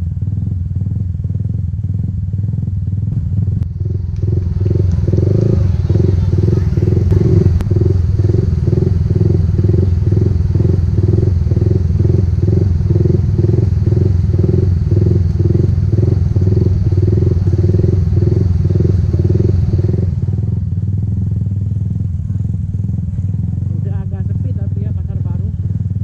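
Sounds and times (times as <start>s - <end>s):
motorcycle engine rumbling: 0.0s - 26.0s.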